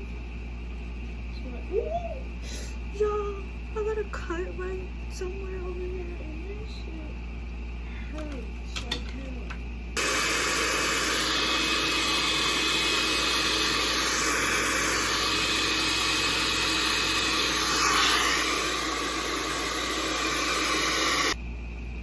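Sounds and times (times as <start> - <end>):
hair dryer blowing air: 10.0 - 21.4.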